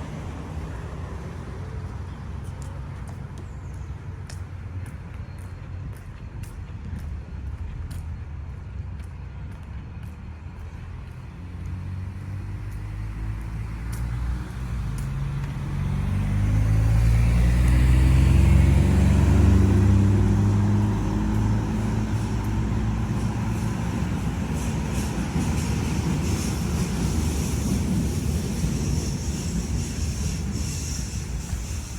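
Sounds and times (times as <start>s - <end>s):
motor vehicle passing: 10.6s - 28.7s.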